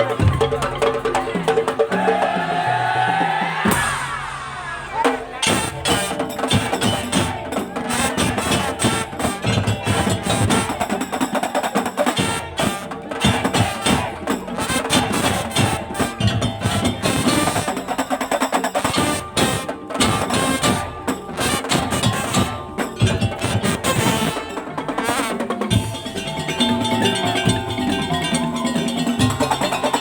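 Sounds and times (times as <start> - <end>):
wooden slit drums and drums: 0.0 - 30.0.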